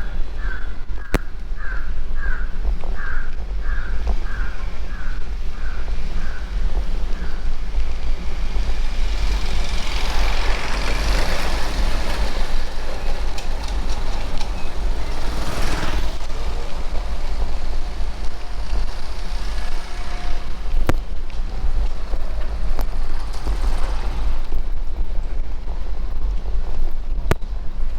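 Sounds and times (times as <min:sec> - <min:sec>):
vehicles passing: 0:00.0 - 0:27.9
wind rumble on microphone: 0:00.0 - 0:27.9
sharp interference clicks: 0:04.0 - 0:24.7.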